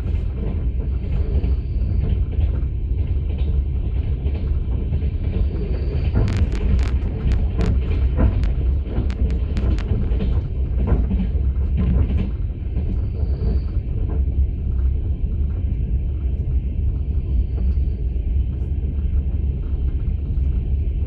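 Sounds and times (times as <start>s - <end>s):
train carriage rumbling on rails: 0.0s - 21.0s.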